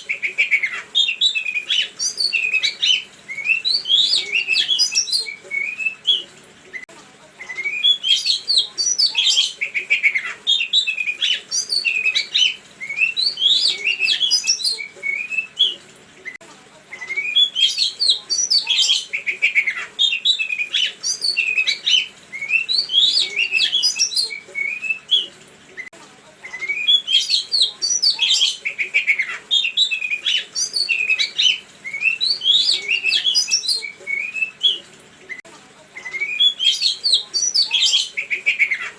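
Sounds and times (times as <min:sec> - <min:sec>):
songbird chirping song: 0:00.0 - 0:38.9.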